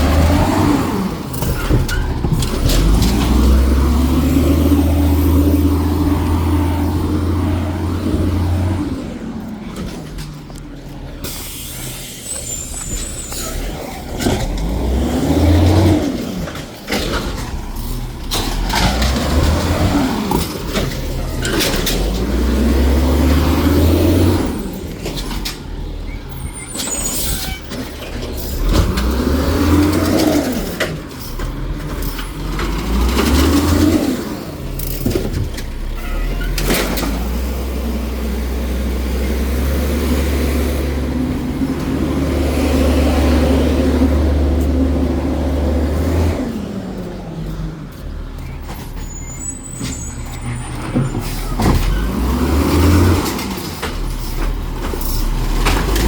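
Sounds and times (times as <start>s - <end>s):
garbage truck engine revving: 0.0s - 56.0s
hydraulic hisses: 11.2s - 13.6s.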